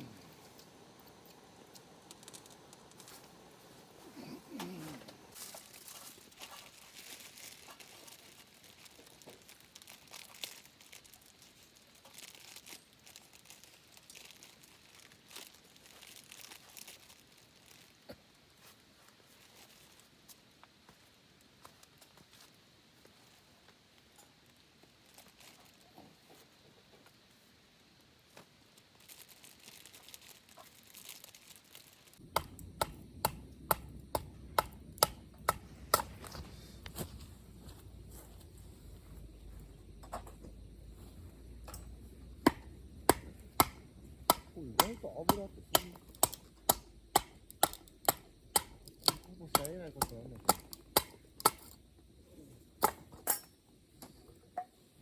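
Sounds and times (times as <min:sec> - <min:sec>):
faint crinkling and rustling: 0:00.0 - 0:32.3, 0:34.8 - 0:47.1
sharp evenly spaced strikes: 0:32.3 - 0:36.1.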